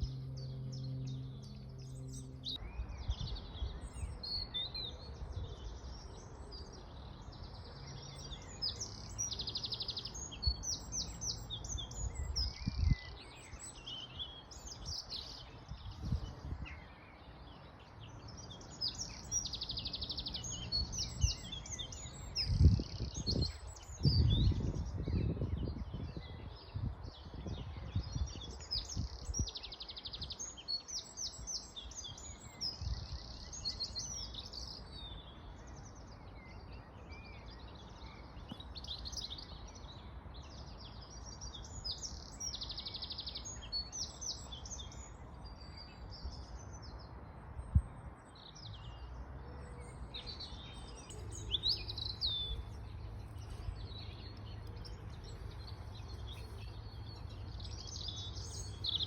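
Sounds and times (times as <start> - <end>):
songbirds singing and chirping: 0.0 - 59.0.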